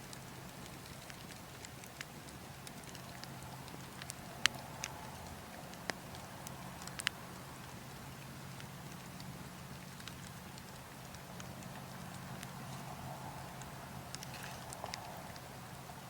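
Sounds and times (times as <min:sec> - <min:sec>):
low rumble of wind: 0:00.0 - 0:16.0
wood fire crackling: 0:00.0 - 0:16.0.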